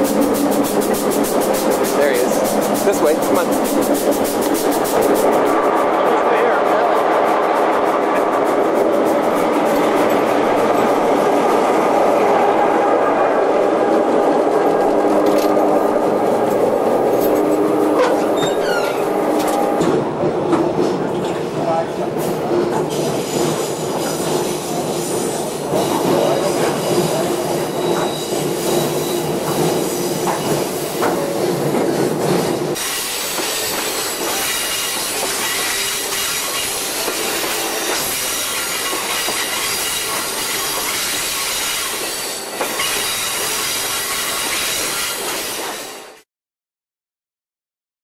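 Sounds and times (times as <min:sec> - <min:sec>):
train low hum: 0:00.0 - 0:46.2
high wheel squeal: 0:17.3 - 0:19.6, 0:23.0 - 0:30.6, 0:32.4 - 0:46.2.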